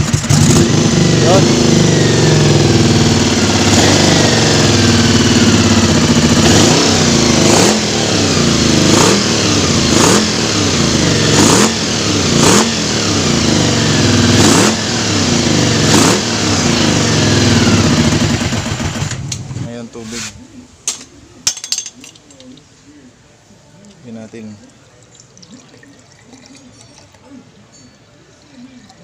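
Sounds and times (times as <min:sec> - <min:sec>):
motorcycle engine revving: 0:00.0 - 0:19.7.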